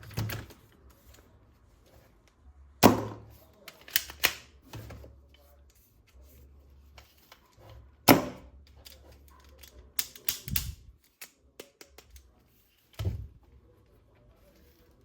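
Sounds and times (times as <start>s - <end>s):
plastic toy parts clicking: 3.6s - 4.5s, 8.7s - 12.3s.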